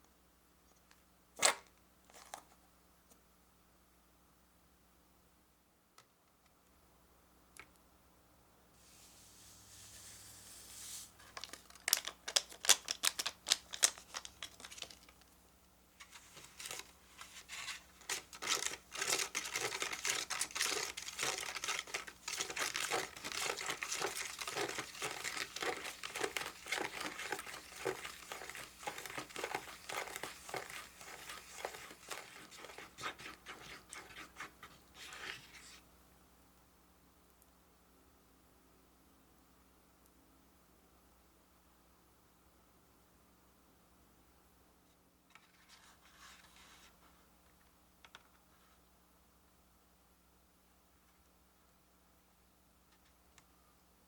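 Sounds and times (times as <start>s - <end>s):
packaging crinkling: 11.2s - 15.3s, 16.0s - 34.5s.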